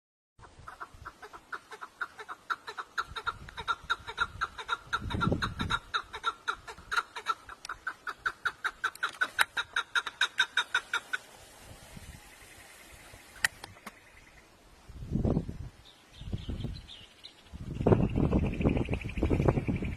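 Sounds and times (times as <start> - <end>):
bird clucking calls: 0.4 - 14.4.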